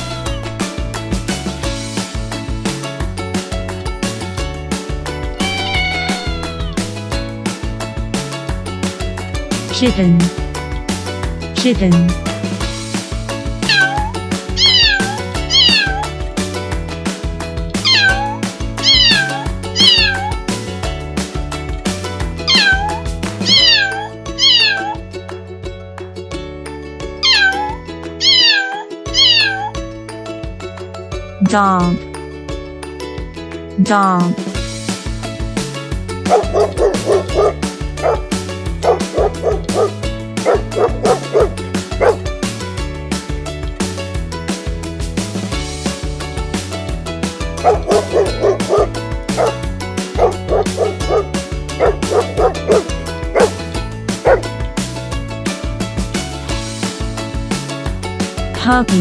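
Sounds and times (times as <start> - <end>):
background music with steady beat: 0.0 - 28.5, 29.1 - 59.0
kitten meowing: 5.4 - 6.8, 13.6 - 16.1, 17.8 - 20.4, 22.5 - 25.0, 27.2 - 29.8
puppy yipping: 5.4 - 6.8, 13.6 - 16.1, 17.8 - 20.4, 22.5 - 25.0, 27.2 - 29.8, 36.2 - 38.2, 38.8 - 42.2, 47.6 - 49.6, 50.2 - 53.6, 54.2 - 54.5.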